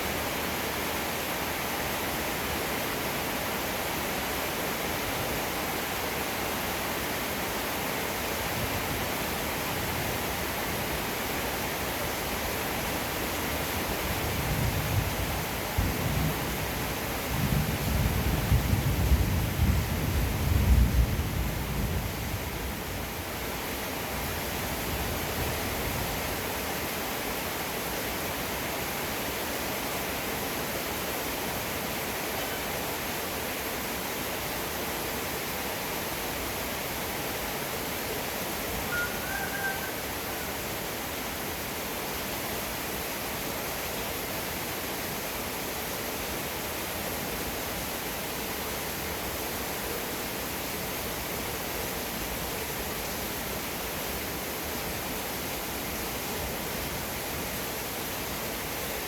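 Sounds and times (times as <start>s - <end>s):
heavy rain falling: 0.0s - 29.6s, 35.1s - 43.4s.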